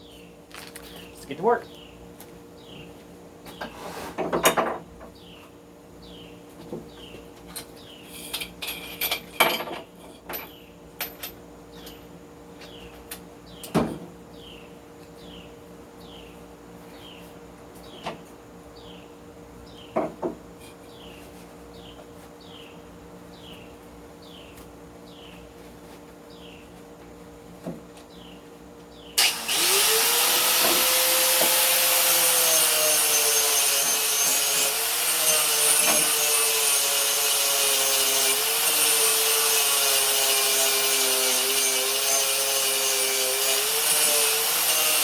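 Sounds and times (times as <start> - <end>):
bird chirping: 0.9 - 2.0
metal tools clinking and knocking: 8.2 - 12.0.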